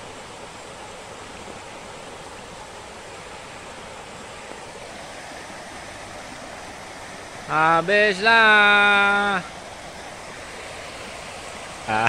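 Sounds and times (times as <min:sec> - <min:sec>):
heavy rain hiss: 0:00.0 - 0:12.0.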